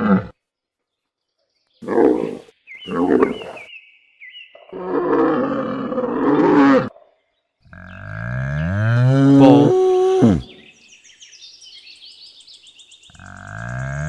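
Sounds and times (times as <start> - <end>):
camel grunting and roaring: 0.0 - 0.4, 1.8 - 3.7, 4.7 - 7.0, 7.6 - 10.6, 13.1 - 14.0.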